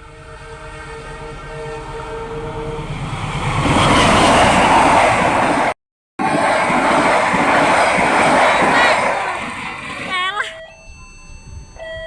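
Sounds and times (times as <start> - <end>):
locomotive horn blast: 0.0 - 3.3
train passing on rails: 0.0 - 10.7.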